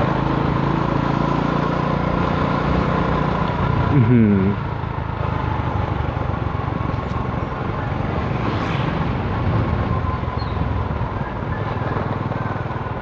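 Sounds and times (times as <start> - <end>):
vehicle engine running: 0.0 - 13.0
wind buffeting microphone: 6.0 - 13.0.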